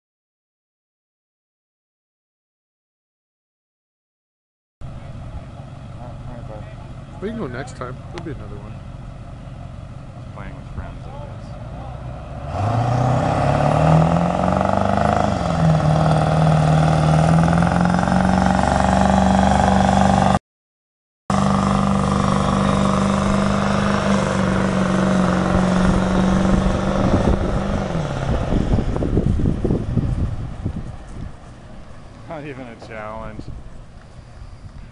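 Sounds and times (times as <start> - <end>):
diesel engine at high revs: 4.8 - 20.4, 21.3 - 32.8.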